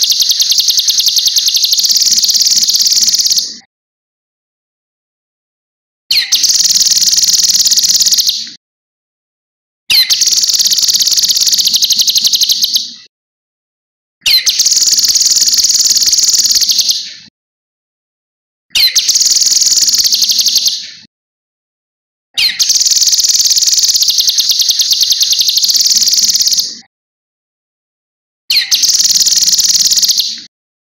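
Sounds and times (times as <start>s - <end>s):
songbird singing shrill trills: 0.0s - 3.6s, 6.1s - 8.4s, 9.9s - 12.9s, 14.3s - 17.0s, 18.8s - 20.9s, 22.4s - 26.8s, 28.5s - 30.5s.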